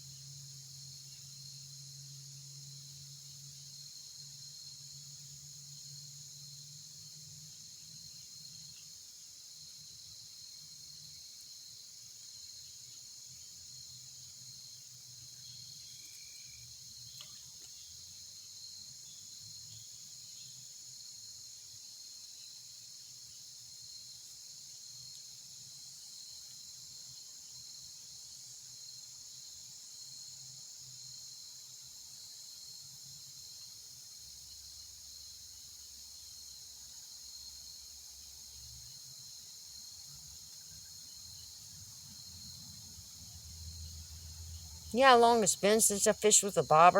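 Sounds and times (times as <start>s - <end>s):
insects trilling: 0.1s - 31.4s.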